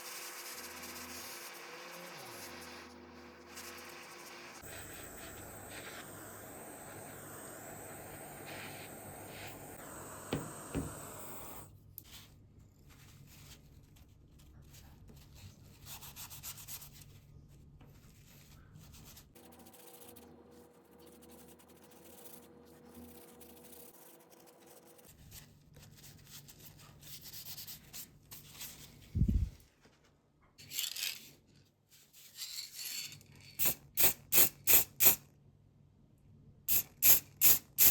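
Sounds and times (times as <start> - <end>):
sandpaper rubbing on knife: 0.0 - 6.8.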